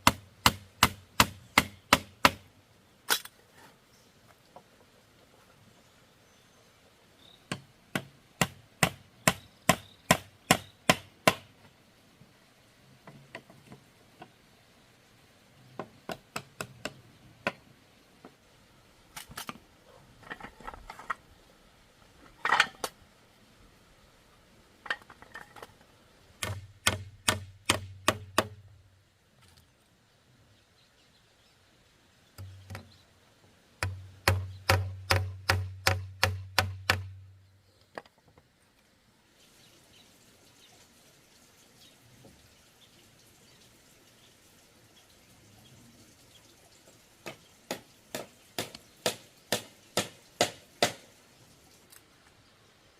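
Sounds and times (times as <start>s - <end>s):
sharp tool strikes on bamboo: 0.0s - 2.4s, 7.5s - 11.5s, 26.4s - 28.6s, 33.8s - 37.1s, 47.2s - 51.1s.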